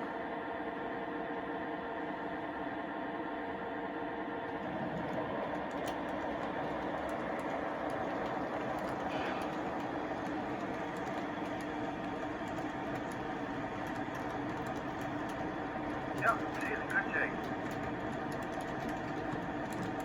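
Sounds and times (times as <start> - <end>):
model train rolling and humming: 1.8 - 20.0
wheels clicking over rail joints: 4.8 - 20.0
diesel engine sound effects: 16.1 - 17.5.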